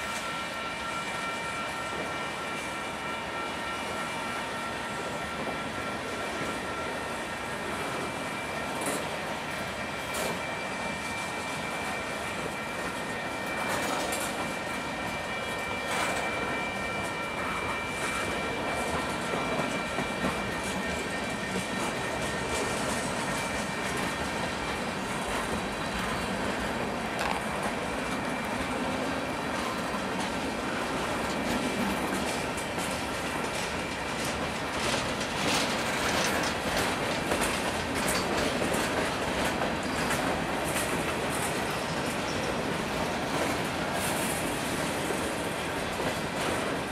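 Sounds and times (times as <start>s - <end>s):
freight train wheels on rails: 0.0s - 46.9s
wheels clicking over rail joints: 29.6s - 42.7s.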